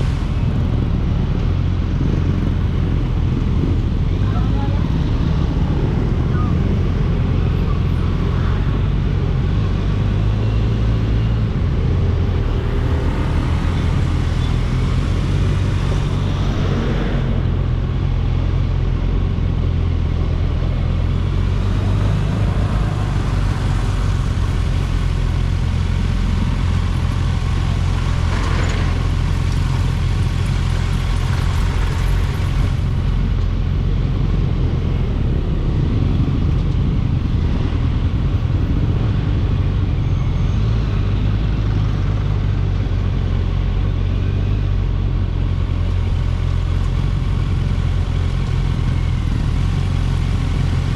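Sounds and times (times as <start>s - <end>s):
road and wind noise: 0.0s - 50.9s.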